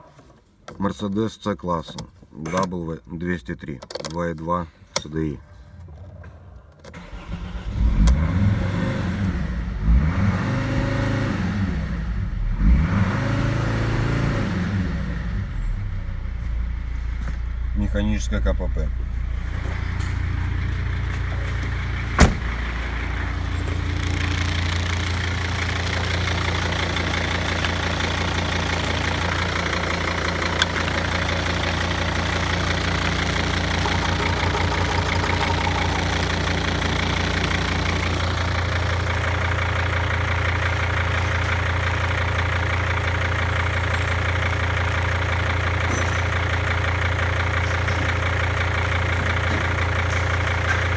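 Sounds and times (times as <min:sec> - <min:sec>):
diesel engine idling: 0:14.8 - 0:50.9.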